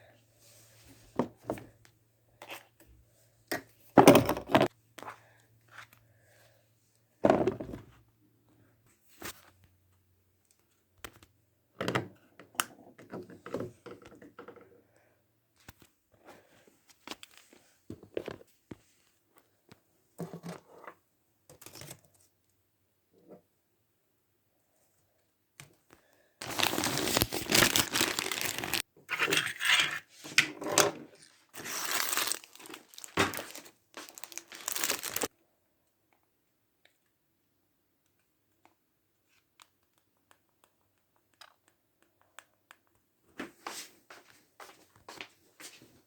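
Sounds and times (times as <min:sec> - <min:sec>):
household objects being handled: 0:07.2 - 0:08.0, 0:26.4 - 0:35.3.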